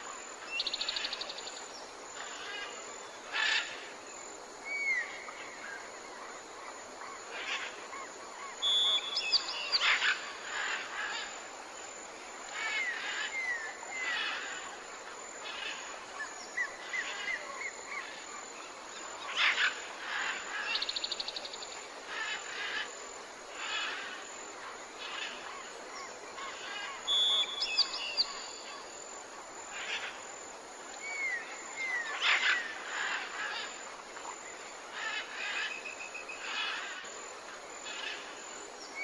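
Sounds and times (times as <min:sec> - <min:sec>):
faint steady hiss: 0:00.0 - 0:39.0
wild birds calling: 0:31.0 - 0:37.1.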